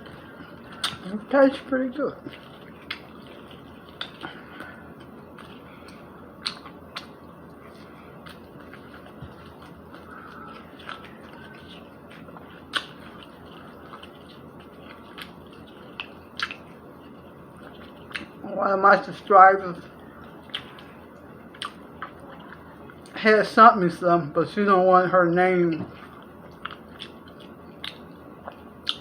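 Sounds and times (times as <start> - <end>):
person chewing: 0.0 - 1.2, 2.1 - 18.4, 19.8 - 23.2, 25.9 - 29.0
mouth clicks and smacks: 6.4 - 7.2, 8.2 - 16.7, 17.6 - 18.4, 26.2 - 29.0.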